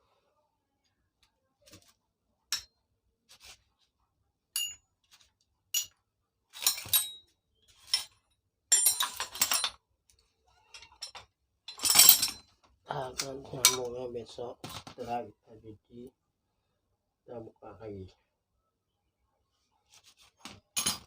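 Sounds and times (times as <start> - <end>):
metal parts clinking and clattering: 5.8 - 7.2, 7.8 - 9.8, 10.6 - 13.9, 20.8 - 21.0.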